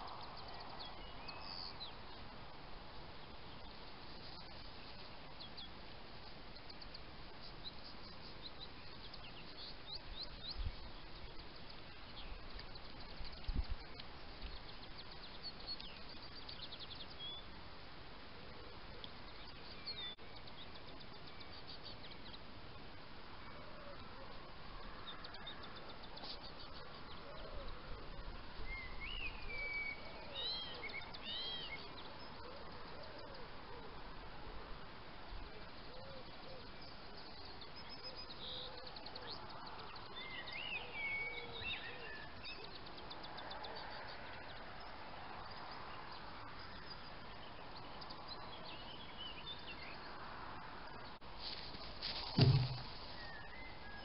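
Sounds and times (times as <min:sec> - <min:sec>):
steady background hiss: 0:00.0 - 0:54.0
birds chirping: 0:50.9 - 0:54.0.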